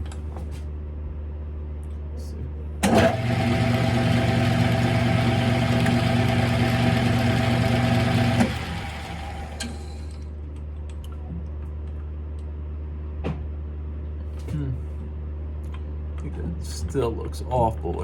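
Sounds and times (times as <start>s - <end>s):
lathe motor and gear whine: 2.8s - 10.2s.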